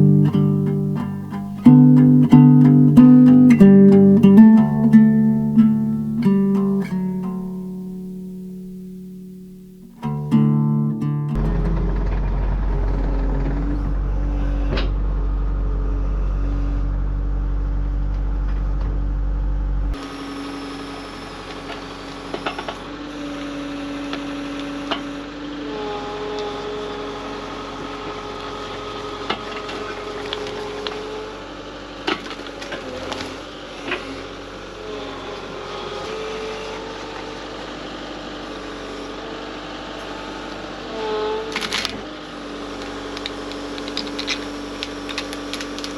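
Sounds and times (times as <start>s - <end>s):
whine shifting in pitch: 0.0s - 19.9s
heavy machinery engine hum: 11.3s - 19.9s.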